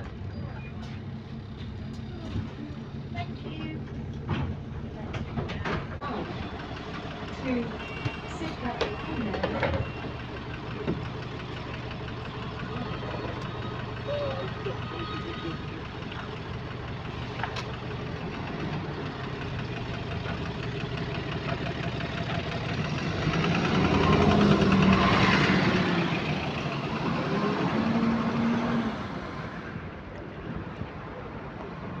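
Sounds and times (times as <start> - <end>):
engine knock: 0.0 - 28.4
bus engine running: 0.0 - 32.0.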